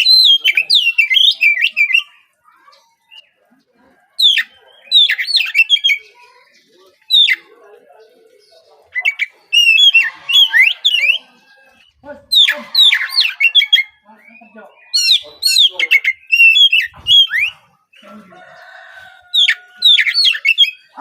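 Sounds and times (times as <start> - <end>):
bird singing sharp whistles: 12.4 - 17.6.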